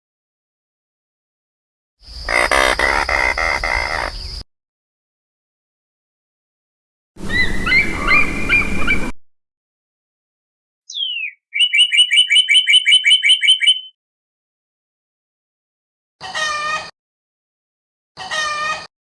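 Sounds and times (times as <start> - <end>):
bird whistle falling in pitch: 7.2 - 9.1, 10.9 - 14.0
fast trill of chirps: 7.2 - 9.1, 10.9 - 13.9
short bird chirps: 10.9 - 14.0.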